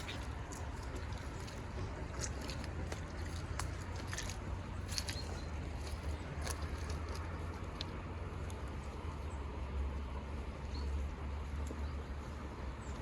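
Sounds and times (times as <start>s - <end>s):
crisp clicks and crunches: 0.0s - 8.7s.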